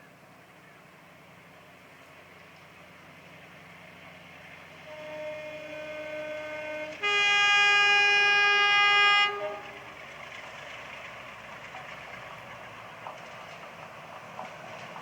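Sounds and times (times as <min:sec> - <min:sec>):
train running: 0:00.0 - 0:15.0
locomotive two-tone horn: 0:04.8 - 0:10.0.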